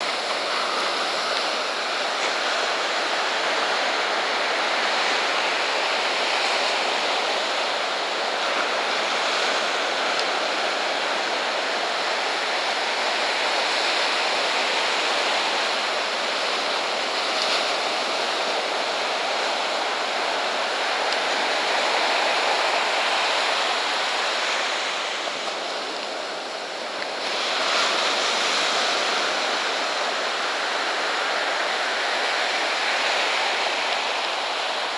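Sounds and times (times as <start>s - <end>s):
ocean surf breaking on beach: 0.0s - 34.9s.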